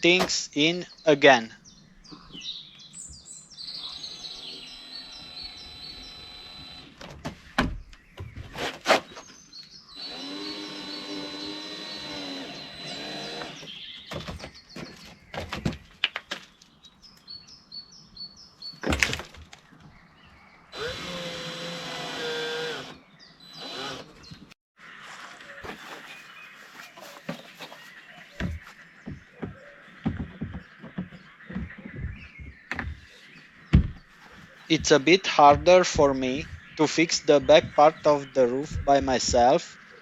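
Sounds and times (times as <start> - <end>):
birds chirping faintly: 0.0 - 40.0
cordless drill driving screws: 4.3 - 7.0, 10.0 - 13.7, 20.7 - 23.0, 23.6 - 24.1
plastic parts knocking: 34.7 - 36.7.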